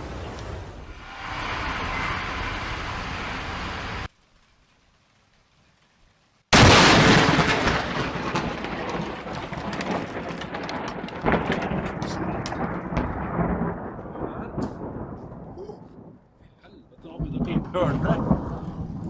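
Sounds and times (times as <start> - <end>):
loud thunderclap rumbling: 6.5 - 16.3, 16.9 - 19.0
sharp thunder crack: 6.5 - 16.3, 17.0 - 19.0.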